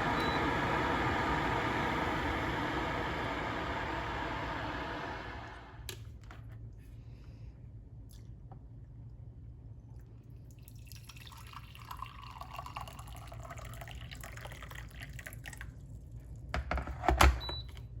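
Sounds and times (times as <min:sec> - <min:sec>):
electric kettle boiling water: 0:00.0 - 0:06.0, 0:10.7 - 0:15.7.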